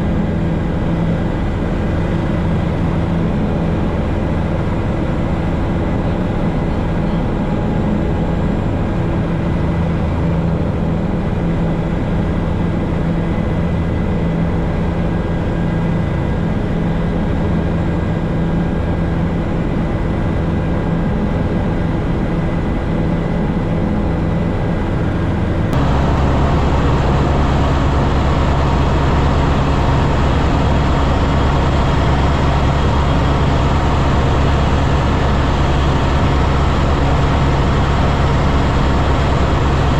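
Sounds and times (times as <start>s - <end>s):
helicopter engine and rotor: 0.0s - 39.9s
high whine: 25.7s - 39.9s.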